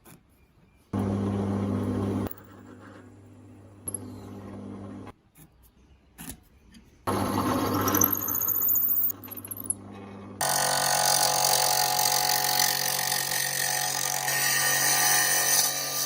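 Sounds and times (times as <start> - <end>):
electric power tool motor humming: 10.4 - 14.4.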